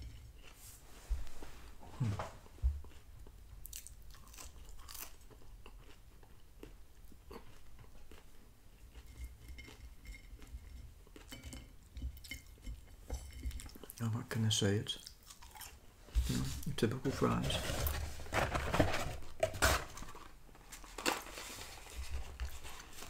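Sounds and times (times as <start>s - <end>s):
chewing fries: 0.0s - 0.7s, 2.8s - 14.2s, 14.8s - 15.9s.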